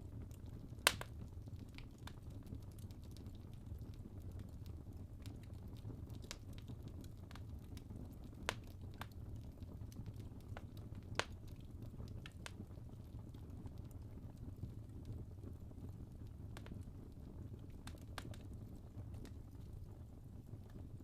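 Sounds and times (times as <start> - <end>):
logs crackling and popping: 0.0 - 21.0
low rumble of flames: 0.0 - 21.0.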